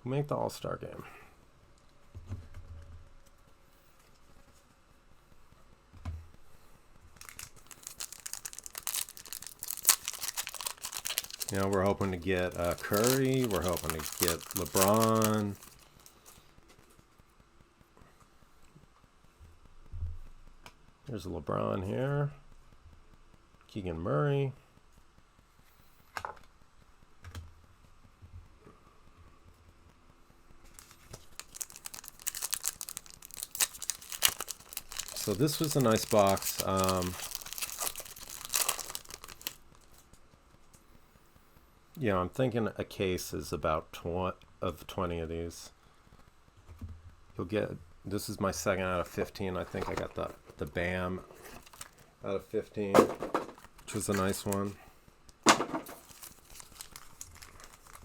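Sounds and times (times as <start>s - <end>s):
plastic wrapper tearing and crinkling: 7.2s - 16.4s, 30.7s - 40.1s, 51.4s - 52.1s, 53.0s - 58.0s.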